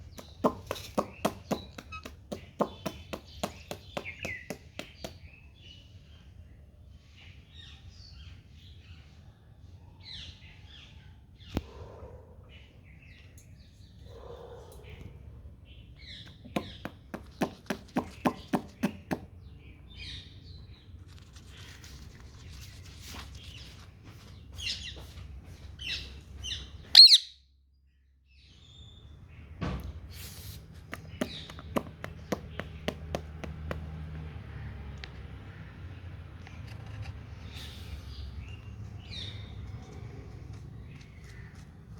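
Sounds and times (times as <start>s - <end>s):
parakeet chirping and squawking: 25.8s - 27.3s.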